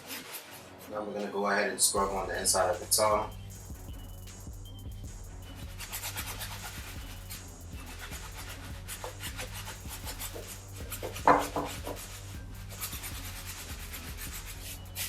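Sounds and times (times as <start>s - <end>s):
brush scrubbing a sneaker: 5.5s - 15.0s.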